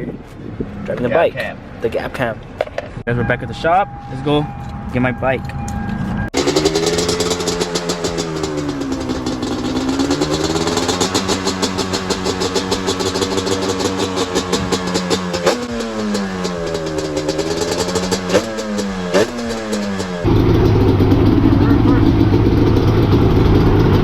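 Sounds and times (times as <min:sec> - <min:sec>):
motorcycle engine revving: 0:06.3 - 0:24.0.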